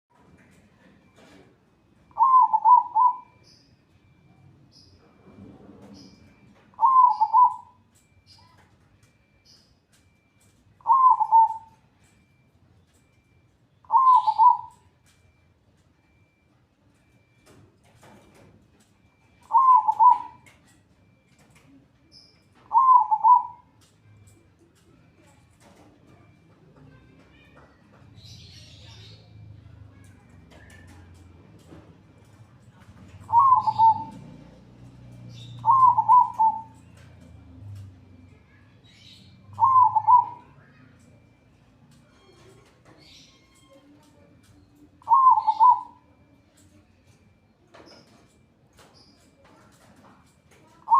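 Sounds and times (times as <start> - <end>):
dove cooing: 2.0 - 3.4, 5.1 - 8.6, 10.1 - 12.4, 13.1 - 15.4, 18.0 - 21.8, 22.6 - 27.2, 28.9 - 41.4, 44.1 - 46.5, 49.5 - 50.9.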